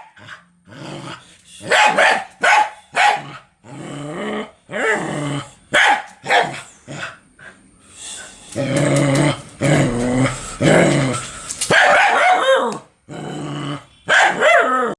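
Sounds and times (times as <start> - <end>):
dog barking: 1.6 - 3.4, 5.7 - 6.7, 11.7 - 12.8, 14.1 - 14.9.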